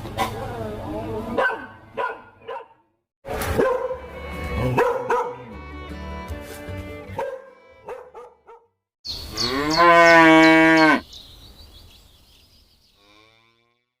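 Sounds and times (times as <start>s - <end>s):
dog barking: 1.4s - 2.8s, 3.5s - 5.5s, 7.2s - 8.8s
cow mooing: 9.3s - 11.0s, 13.0s - 13.8s.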